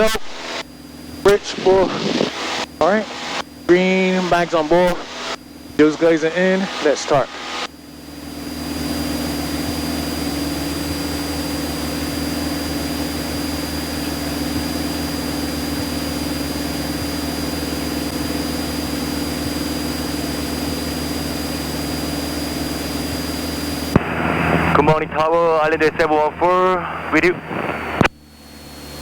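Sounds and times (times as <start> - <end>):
aircraft engine idling: 0.0 - 29.0
thin high whine: 0.0 - 29.0.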